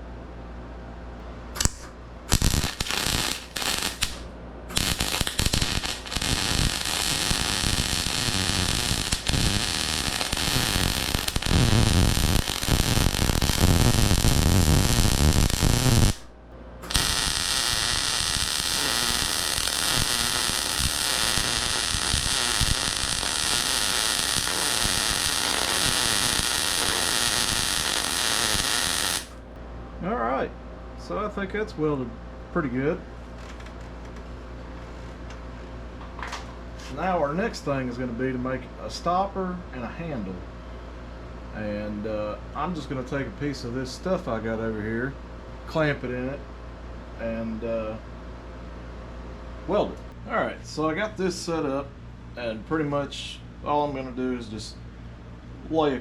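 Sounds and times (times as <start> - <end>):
electric arc welding crackle: 1.6 - 29.4.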